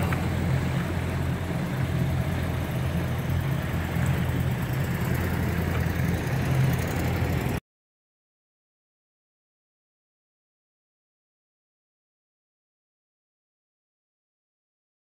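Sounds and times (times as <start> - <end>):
engine running steadily: 0.0 - 7.6.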